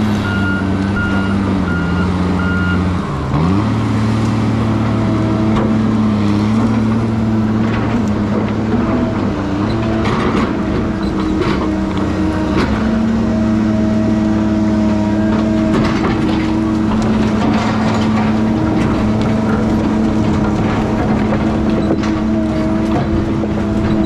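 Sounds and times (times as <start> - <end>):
diesel engine running: 0.0 - 24.0
machine knocks and clanks: 15.1 - 24.0.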